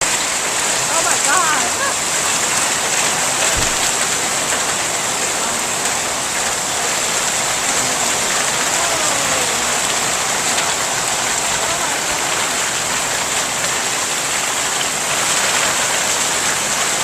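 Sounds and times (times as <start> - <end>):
hail pelting down: 0.0 - 17.0
low thump: 3.5 - 4.0.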